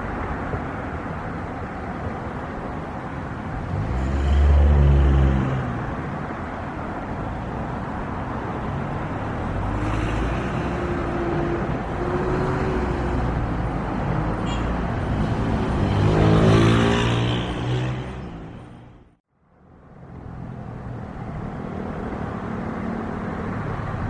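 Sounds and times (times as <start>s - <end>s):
outdoor roar: 3.5s - 6.3s, 7.4s - 19.2s
vehicle passing by: 3.6s - 6.3s, 7.5s - 19.2s.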